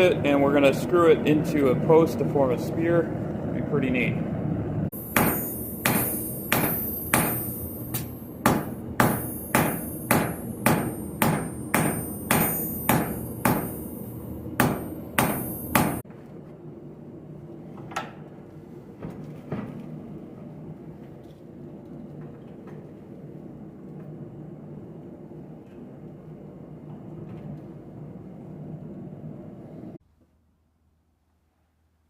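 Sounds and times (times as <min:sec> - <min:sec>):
hammer striking steel on anvil: 0:05.0 - 0:16.0.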